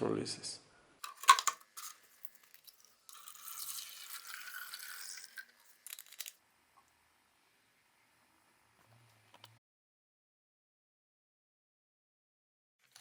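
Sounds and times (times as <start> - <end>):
liquid pouring into plastic bottle: 1.0 - 6.4.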